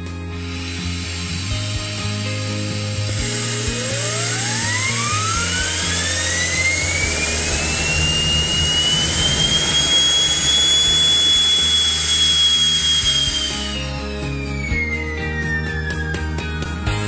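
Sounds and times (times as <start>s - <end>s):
background music: 0.0s - 17.0s
turbine jet engine whine: 0.0s - 17.0s.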